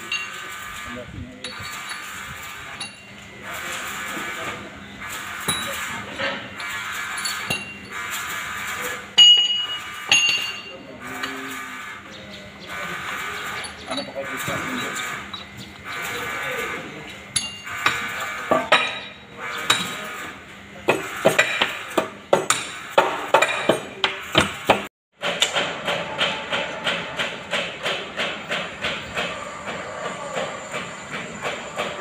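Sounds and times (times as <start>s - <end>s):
metal tools knocking and clanking: 5.4s - 8.0s, 9.2s - 10.8s, 20.9s - 32.0s.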